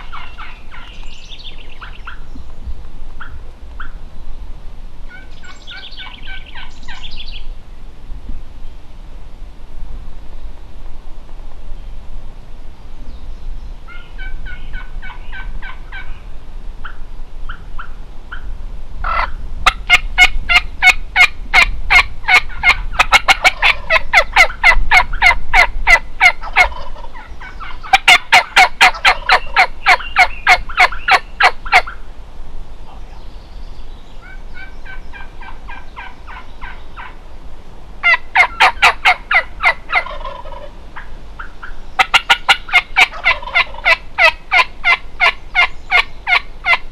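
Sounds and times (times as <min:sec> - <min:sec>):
turkeys gobbling: 0:00.0 - 0:01.0, 0:13.9 - 0:16.2, 0:19.0 - 0:32.0, 0:34.2 - 0:37.2, 0:38.0 - 0:46.8.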